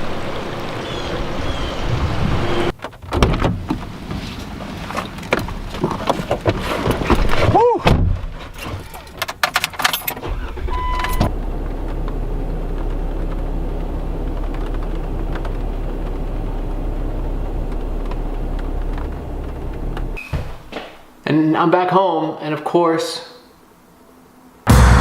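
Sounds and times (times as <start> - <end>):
car engine running: 10.2 - 20.2.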